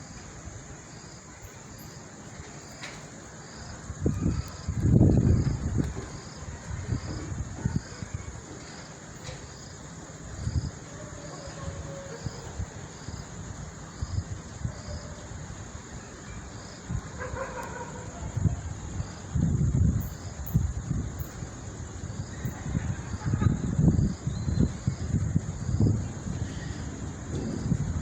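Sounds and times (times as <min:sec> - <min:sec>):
high insect drone: 0:00.0 - 0:28.0
insect chirping: 0:00.0 - 0:28.0
wind gusting against microphone: 0:00.0 - 0:28.0.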